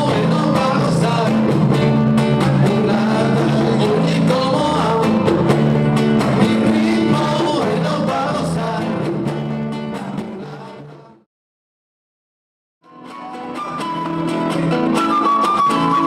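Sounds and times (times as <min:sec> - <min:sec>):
person singing: 0:00.0 - 0:01.5, 0:02.2 - 0:05.4, 0:06.2 - 0:09.1, 0:09.8 - 0:11.2
band playing: 0:00.0 - 0:11.0, 0:12.9 - 0:16.0.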